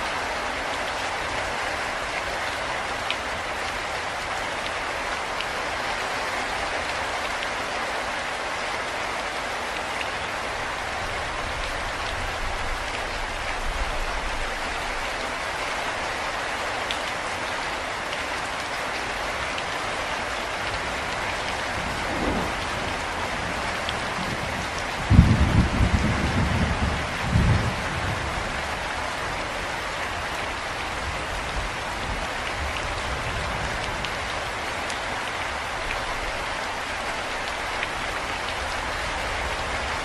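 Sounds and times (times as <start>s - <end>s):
steady rain falling: 0.0s - 40.0s
rumble of thunder: 21.4s - 28.7s.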